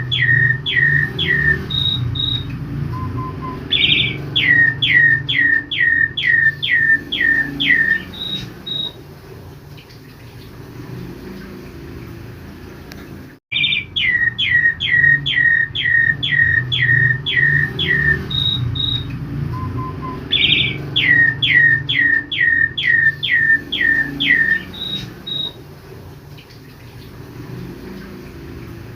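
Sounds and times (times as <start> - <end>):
starling whistling calls: 0.0 - 9.0, 13.5 - 25.6.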